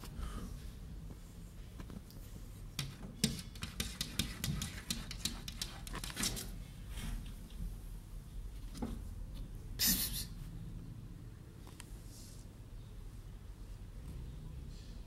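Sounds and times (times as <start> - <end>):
rapid light tapping: 2.8 - 6.4.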